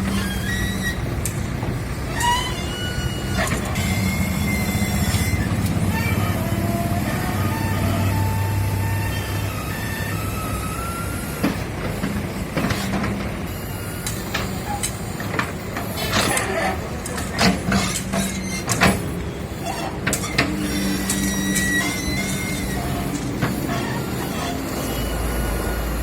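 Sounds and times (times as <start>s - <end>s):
traffic engines running: 0.0s - 26.0s
sharp knocks and clanks: 14.0s - 19.2s.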